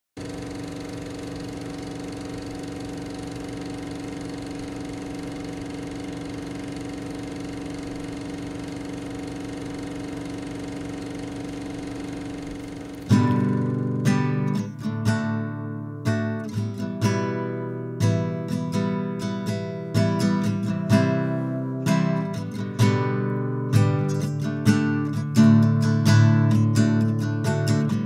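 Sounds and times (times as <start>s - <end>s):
engine idling: 0.2s - 14.7s.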